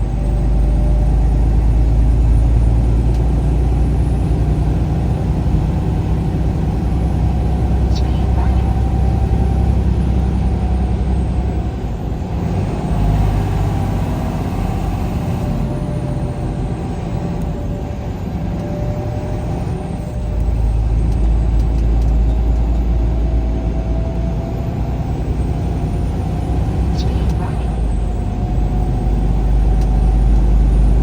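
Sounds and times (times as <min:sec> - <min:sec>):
vehicle engine and road rumble: 0:00.0 - 0:31.0
faint whine: 0:07.4 - 0:09.7, 0:26.7 - 0:27.9.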